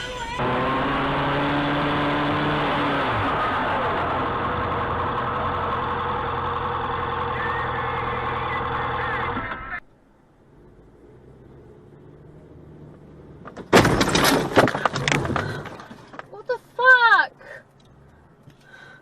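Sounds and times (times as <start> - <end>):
vehicle engine running: 0.0 - 13.5.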